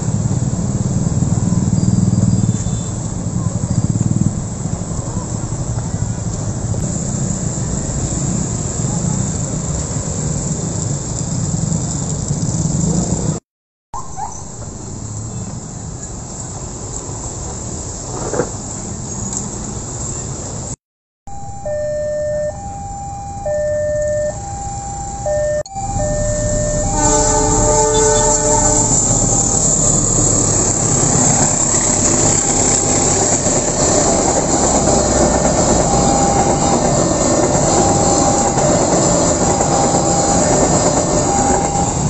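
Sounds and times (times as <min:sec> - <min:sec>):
train wheels rumbling on rails: 0:26.1 - 0:42.0
train horn: 0:26.8 - 0:29.3.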